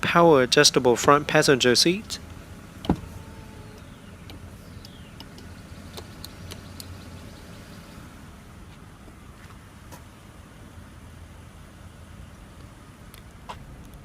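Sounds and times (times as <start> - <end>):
vehicle rumble: 0.0 - 14.0
sharp thump: 2.8 - 3.2
faint clicks: 4.3 - 7.0.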